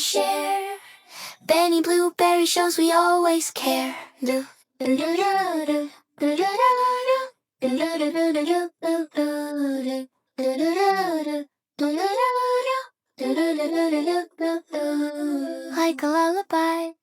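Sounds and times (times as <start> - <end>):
child-like voice singing: 0.0 - 0.8.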